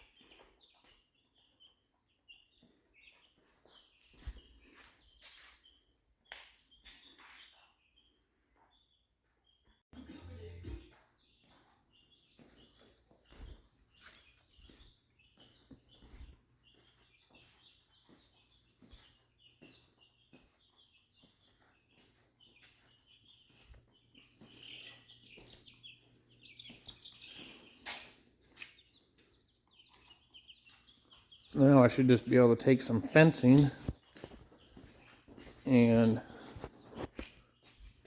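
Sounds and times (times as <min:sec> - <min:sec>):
chickens clucking: 0:23.2 - 0:37.3.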